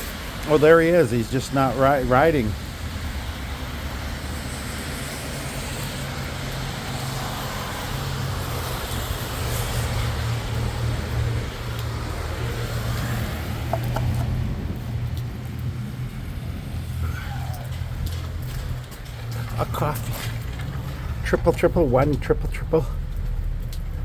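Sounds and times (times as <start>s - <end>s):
traffic engine hum: 0.0s - 24.0s
wet road hiss: 0.0s - 24.0s.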